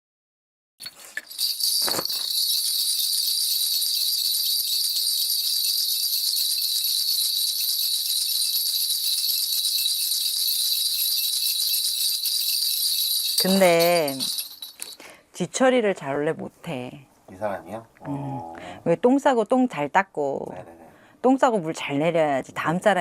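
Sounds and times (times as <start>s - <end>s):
ritual bells jingling: 0.8s - 15.2s.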